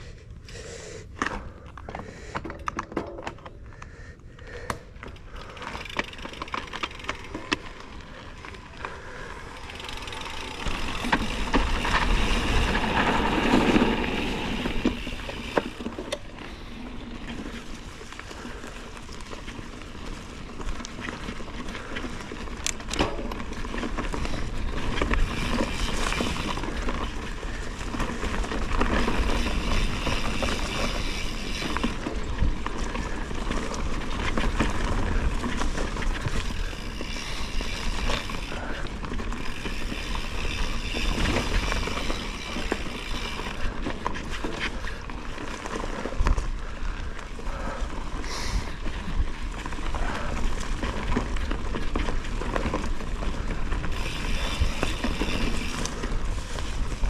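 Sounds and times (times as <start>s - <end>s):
bike tyres rolling on dirt: 0.0s - 57.0s
bike frame and chain rattling: 1.2s - 57.0s
wind rumbling on microphone: 7.8s - 45.0s.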